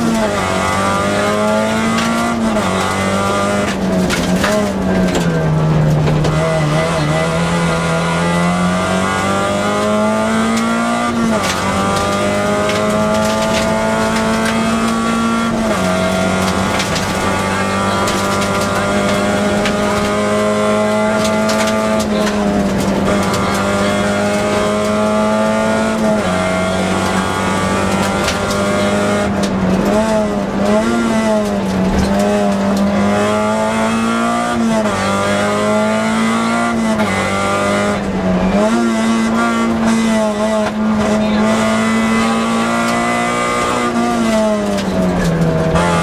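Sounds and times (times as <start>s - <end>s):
rally car engine revving: 0.0s - 46.0s.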